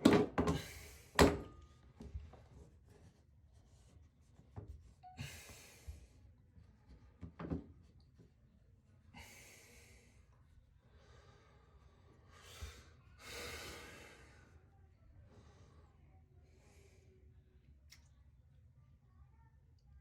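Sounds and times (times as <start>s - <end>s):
person breathing faintly: 9.2s - 17.3s.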